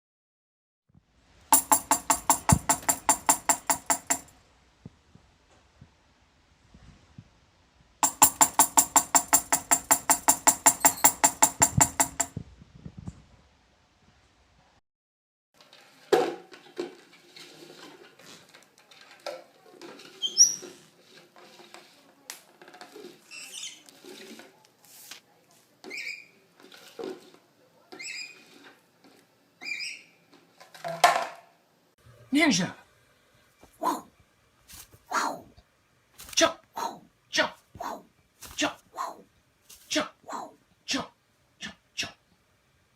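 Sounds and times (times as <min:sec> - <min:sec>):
parrot scuffling and tapping: 0:08.0 - 0:12.4
parrot squeaks and chirps: 0:20.2 - 0:20.8, 0:23.3 - 0:23.8, 0:25.9 - 0:26.4, 0:28.0 - 0:28.5, 0:29.6 - 0:30.2.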